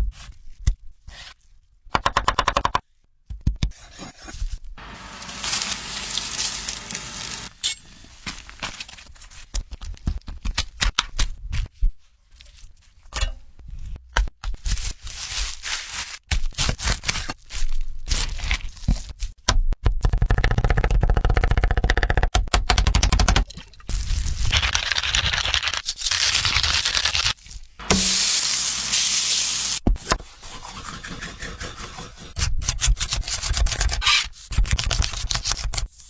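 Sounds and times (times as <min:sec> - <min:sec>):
cracking scraping and tearing: 0:24.0 - 0:27.6.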